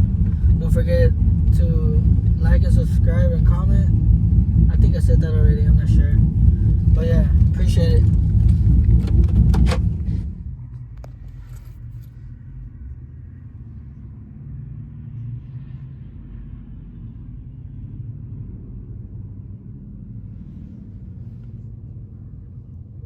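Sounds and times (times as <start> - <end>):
low vehicle rumble: 0.0 - 23.0.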